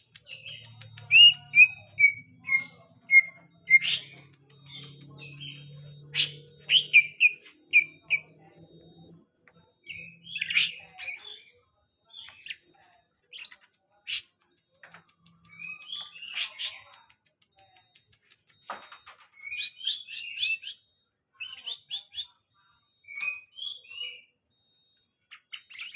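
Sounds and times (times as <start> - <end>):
bird chirping and whistling: 0.0 - 7.9, 8.6 - 11.2.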